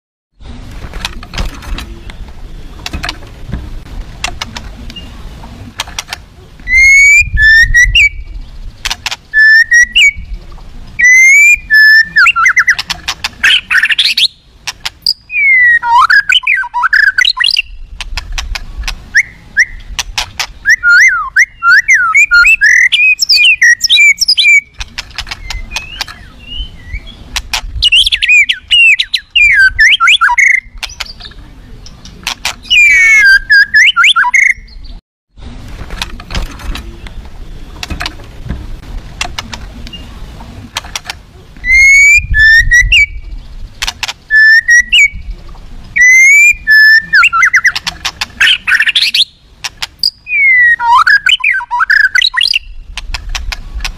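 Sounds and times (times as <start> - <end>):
bird singing: 4.8 - 5.3, 6.6 - 18.0, 19.1 - 35.0, 41.6 - 52.9
sharp clicks: 5.7 - 6.3, 8.8 - 9.3, 12.2 - 15.2, 17.3 - 19.0, 19.8 - 20.6, 22.6 - 26.2, 30.4 - 32.8, 40.7 - 41.2, 43.8 - 44.3, 47.2 - 50.2, 51.9 - 53.9.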